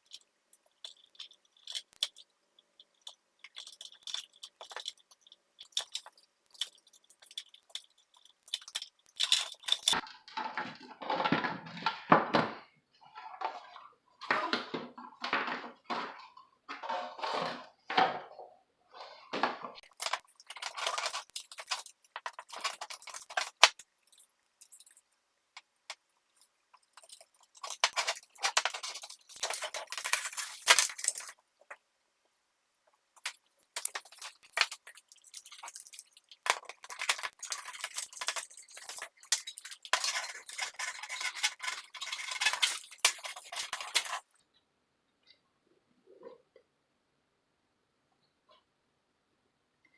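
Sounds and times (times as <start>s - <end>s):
metal clock parts clinking: 0.0s - 10.0s, 19.8s - 25.0s, 26.4s - 31.4s, 33.2s - 44.4s.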